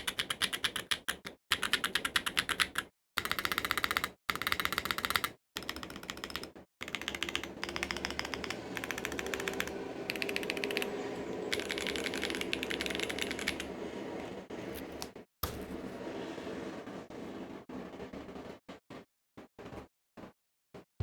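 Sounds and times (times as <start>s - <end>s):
mechanical keyboard typing: 0.0s - 13.8s.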